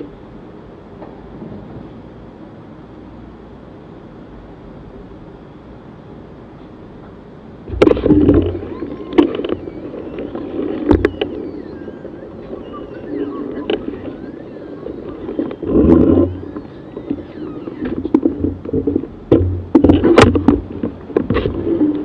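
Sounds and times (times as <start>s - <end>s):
wind buffeting microphone: 7.7s - 22.0s.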